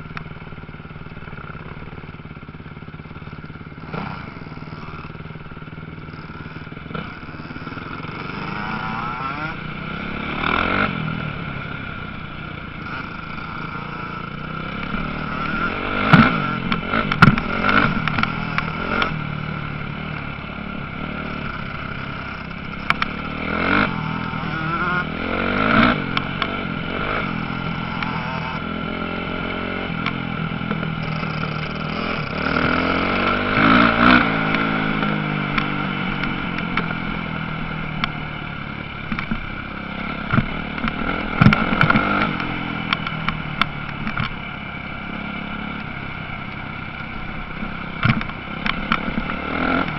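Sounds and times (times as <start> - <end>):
clatter: 0.0 - 11.0, 12.6 - 20.4, 21.0 - 28.7, 29.9 - 38.3, 38.9 - 44.5, 45.7 - 49.9
motocross bike engines revving: 0.0 - 49.9.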